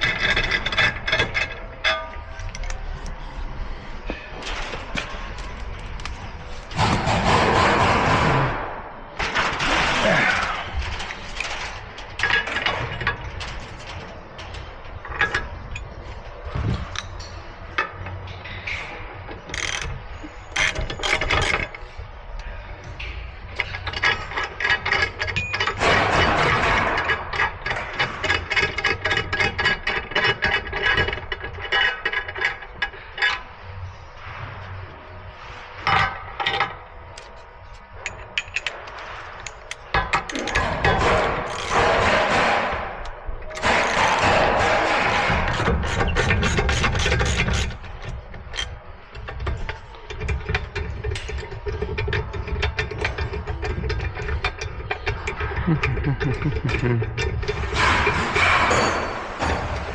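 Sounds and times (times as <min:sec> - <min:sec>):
hand ratchet clicking: 0:19.5 - 0:21.7, 0:39.4 - 0:42.0, 0:43.0 - 0:48.8.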